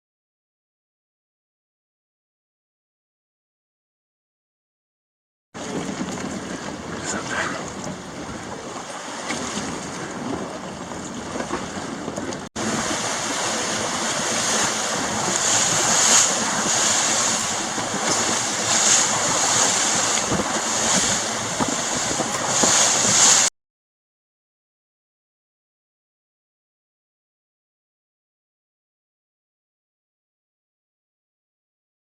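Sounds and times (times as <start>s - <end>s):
sea surf washing on beach: 5.6s - 23.5s
wind buffeting microphone: 5.6s - 23.5s.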